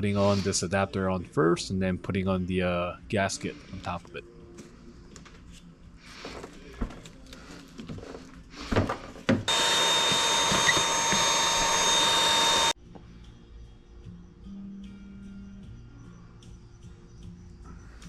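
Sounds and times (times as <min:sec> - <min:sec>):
power tool running: 0:09.5 - 0:12.8.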